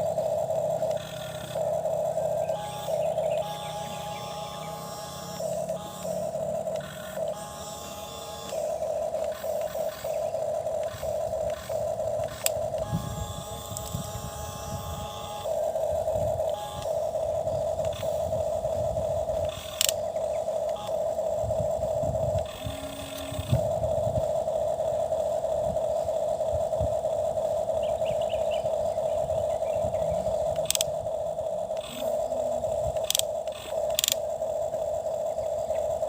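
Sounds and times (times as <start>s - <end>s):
lower whine: 0.0s - 36.0s
toy excavator motor whining: 0.0s - 36.0s
sharp clicks and scrapes: 19.4s - 20.0s, 32.9s - 34.2s.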